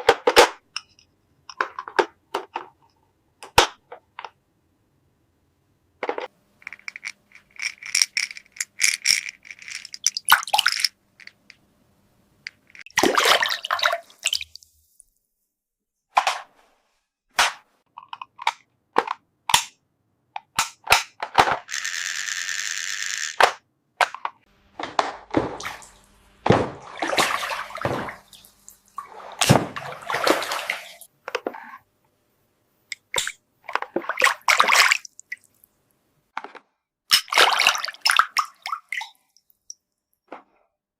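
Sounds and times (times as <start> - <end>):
plastic toy pieces clattering: 6.0 - 11.5.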